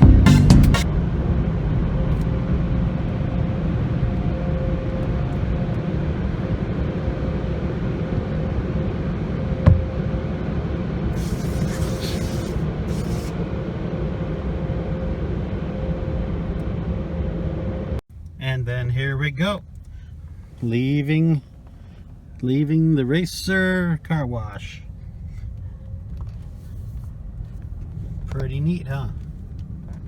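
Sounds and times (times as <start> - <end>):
car wash rumble: 0.0 - 13.7
faint steady hum: 0.8 - 30.0
thump: 9.6 - 9.9
hissing bursts: 11.2 - 13.4.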